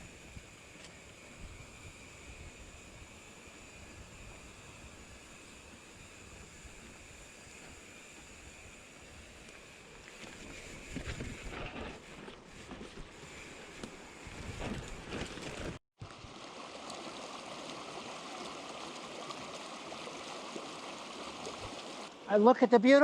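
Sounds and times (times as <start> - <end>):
creek flowing: 0.0 - 22.5
wind noise on microphone: 10.4 - 13.1, 14.2 - 15.8.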